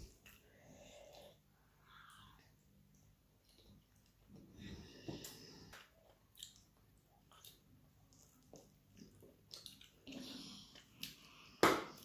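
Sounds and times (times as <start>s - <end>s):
chewing with wet lip smacks: 6.3s - 10.2s.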